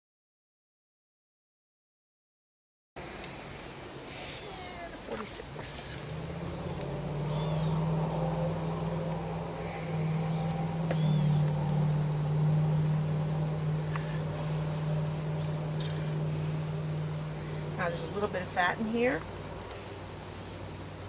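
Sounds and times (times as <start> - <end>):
crickets trilling: 3.0 - 21.0
low hum: 5.1 - 21.0.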